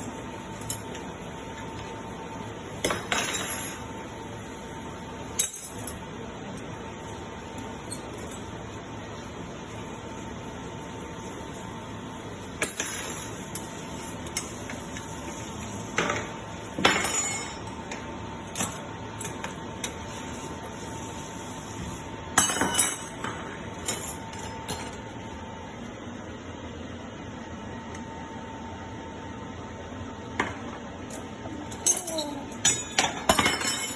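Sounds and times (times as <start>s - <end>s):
steady background hum: 0.0s - 33.9s
dishes and cutlery clinking: 31.7s - 33.9s.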